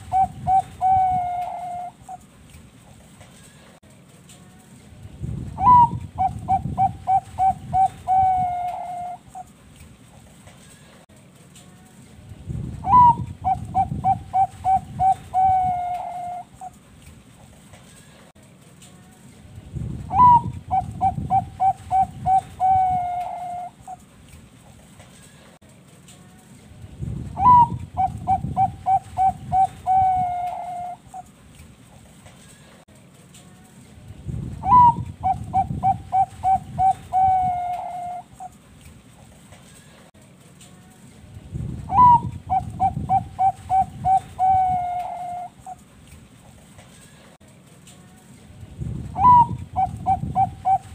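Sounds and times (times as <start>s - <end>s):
dove singing: 0.0s - 2.3s, 5.5s - 9.6s, 12.8s - 16.8s, 20.1s - 24.1s, 27.3s - 31.4s, 34.6s - 38.6s, 41.8s - 45.8s, 49.2s - 50.9s.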